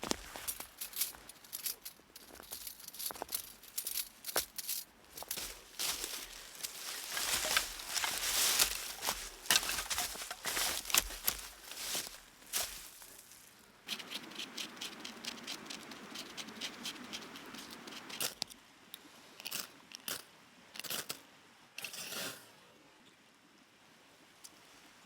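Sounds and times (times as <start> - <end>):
rustling: 0.0 - 18.3
crunching and crackling: 0.0 - 18.4.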